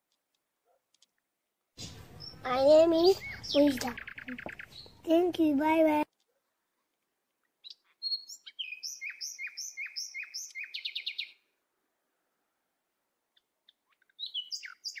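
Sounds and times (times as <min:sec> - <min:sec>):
songbird singing: 0:01.8 - 0:05.4, 0:07.3 - 0:11.6, 0:13.2 - 0:15.0.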